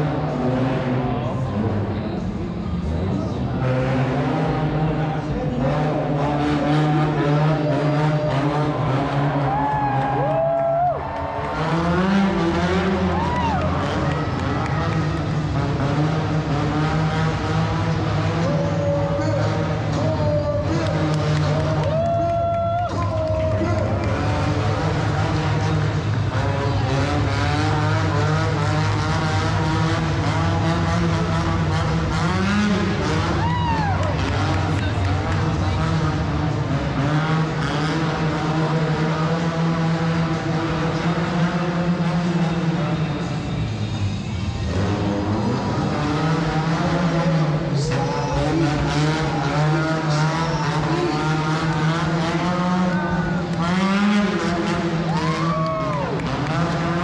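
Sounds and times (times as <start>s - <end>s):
truck engine revving: 0.0s - 10.3s, 11.2s - 57.0s.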